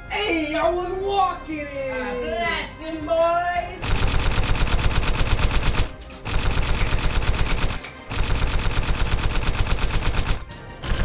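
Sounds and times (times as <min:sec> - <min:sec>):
automatic gunfire bursts: 0:03.8 - 0:11.0.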